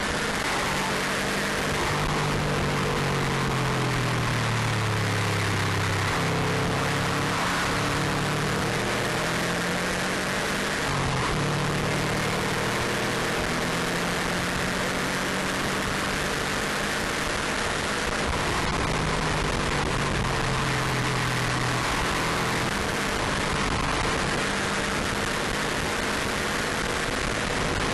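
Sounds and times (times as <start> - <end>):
car engine running hard: 0.0 - 27.9
wind and road noise: 0.0 - 27.9.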